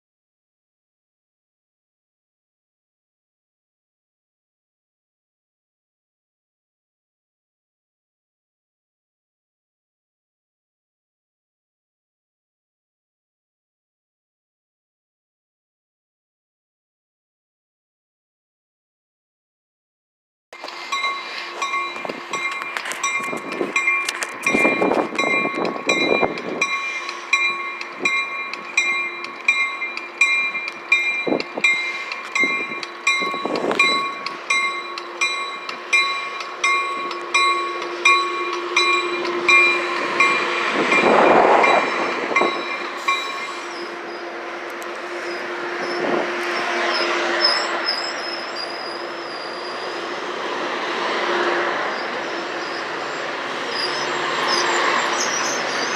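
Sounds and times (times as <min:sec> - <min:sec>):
train rumbling past: 0:20.6 - 0:55.9
faint high wheel squeal: 0:31.2 - 0:50.3, 0:51.2 - 0:55.9.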